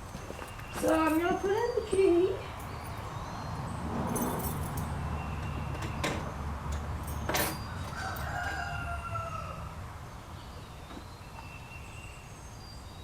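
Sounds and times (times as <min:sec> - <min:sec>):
rooster crowing: 0:07.6 - 0:10.0.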